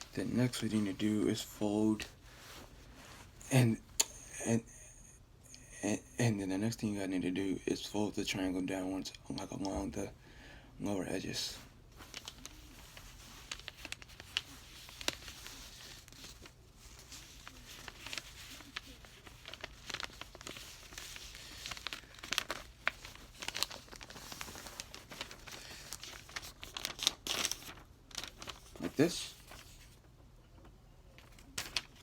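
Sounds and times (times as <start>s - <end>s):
paper creases crackling: 0.0s - 3.0s, 11.5s - 32.0s
paper crinkling and rustling: 0.0s - 3.4s, 11.5s - 32.0s.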